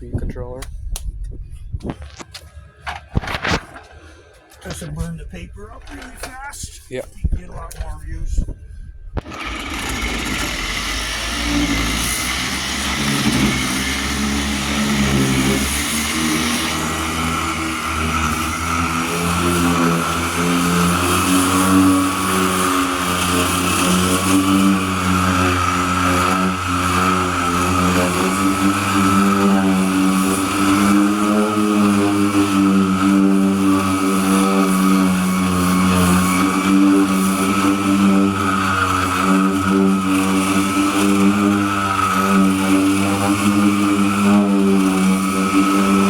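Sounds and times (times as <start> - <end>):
electric sander motor hum: 9.2 - 46.0.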